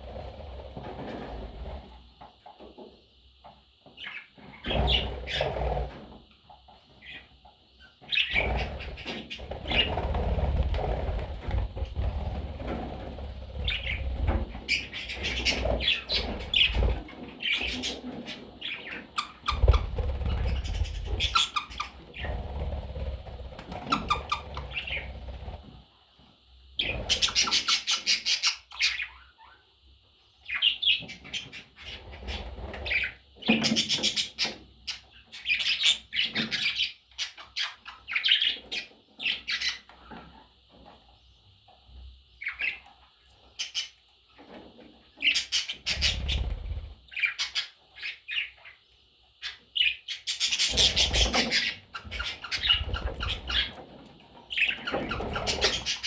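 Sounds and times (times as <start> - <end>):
parrots chirping and squawking: 4.0 - 5.6, 7.8 - 12.2, 13.2 - 25.6, 26.8 - 29.6, 30.4 - 39.9, 42.4 - 42.9, 43.6 - 44.0, 45.2 - 48.8, 49.4 - 53.8, 54.5 - 56.0.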